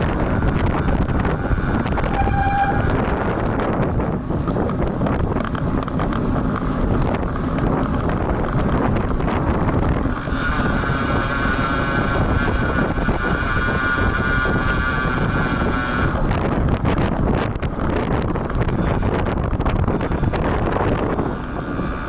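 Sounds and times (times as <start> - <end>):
high-pitched whine: 0.0 - 3.4
wind rumbling on microphone: 0.0 - 22.0.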